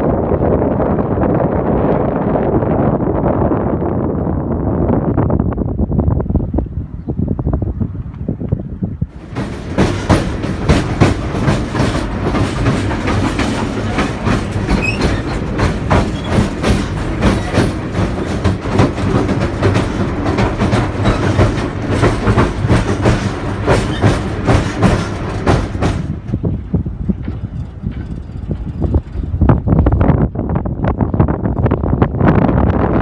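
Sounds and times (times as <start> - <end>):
electric train hum: 0.0 - 32.6
train wheels clattering over rail joints: 9.1 - 29.4.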